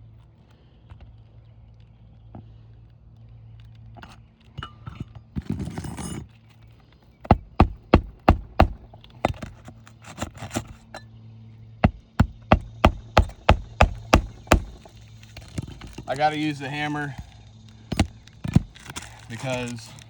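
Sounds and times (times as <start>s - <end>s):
shingles rustling: 5.3s - 11.0s, 11.9s - 20.0s
hammer driving nails: 7.3s - 10.8s, 11.8s - 16.1s, 17.9s - 19.2s.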